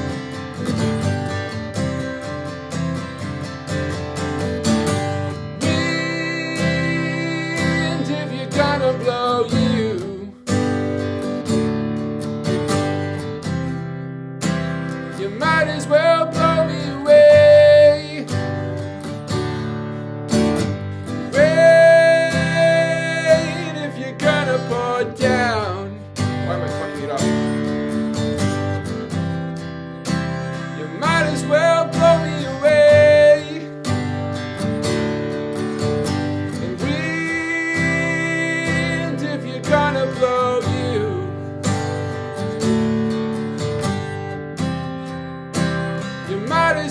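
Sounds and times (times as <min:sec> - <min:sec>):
acoustic guitar strumming: 0:00.0 - 0:46.9
person singing wordless melody: 0:05.6 - 0:10.5, 0:15.2 - 0:18.4, 0:21.3 - 0:27.4, 0:30.6 - 0:33.8, 0:36.6 - 0:41.5, 0:46.3 - 0:46.9.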